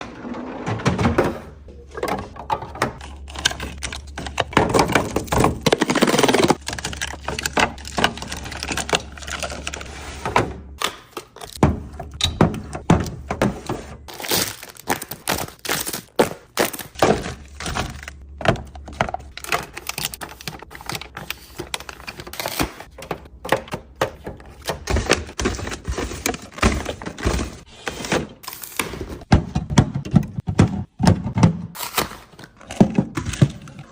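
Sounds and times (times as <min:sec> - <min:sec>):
food containers clattering: 0:00.0 - 0:33.9
packaging rustling: 0:14.1 - 0:18.3.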